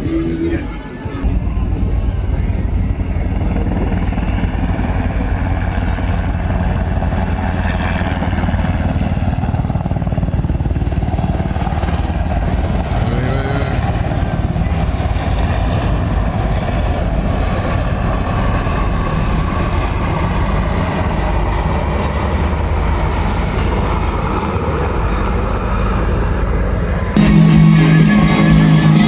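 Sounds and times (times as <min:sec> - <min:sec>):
music: 0:00.0 - 0:01.3, 0:27.2 - 0:29.0
airplane engine roar: 0:00.0 - 0:29.0.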